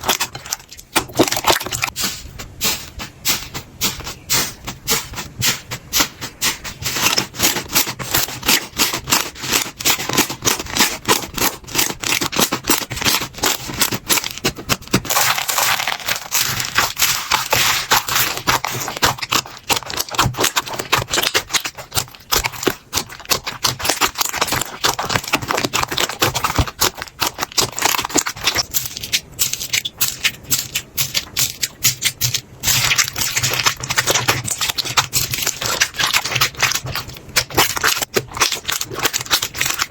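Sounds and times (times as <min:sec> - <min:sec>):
slime squishing and popping: 0:00.0 - 0:39.9.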